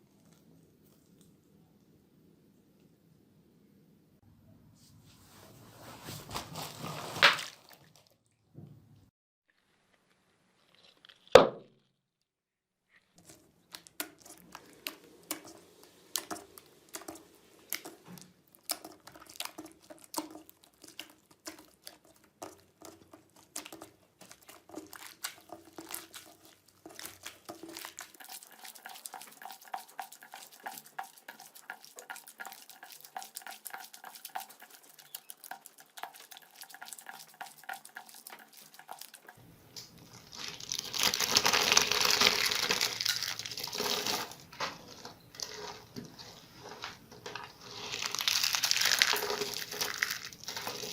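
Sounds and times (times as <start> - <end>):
slime clicking and crackling: 18.5 - 44.2, 47.7 - 50.9.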